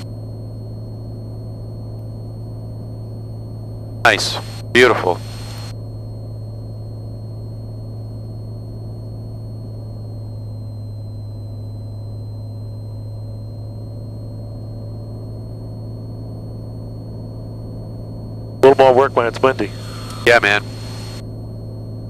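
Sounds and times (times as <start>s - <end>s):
faint high whine: 0.0s - 22.0s
airplane engine and propeller droning: 4.1s - 5.7s, 18.6s - 21.2s.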